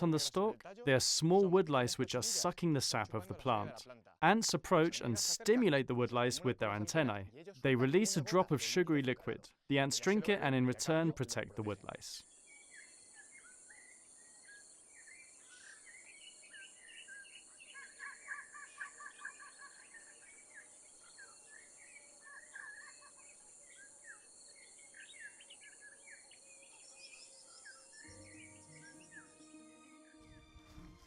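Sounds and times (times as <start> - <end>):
birds chirping and trilling: 12.3 - 30.5
high insect hum: 19.2 - 29.3.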